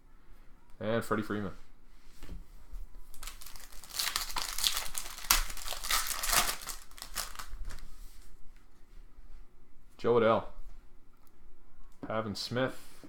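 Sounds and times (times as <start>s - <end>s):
card pack wrapper crinkling: 3.1s - 7.8s.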